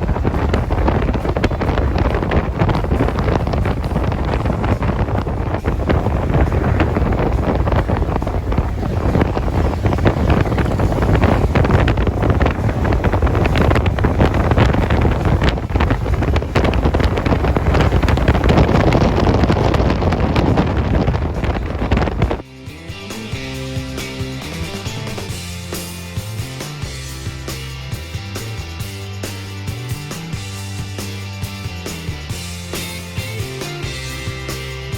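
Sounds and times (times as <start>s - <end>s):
wind buffeting microphone: 0.0s - 22.5s.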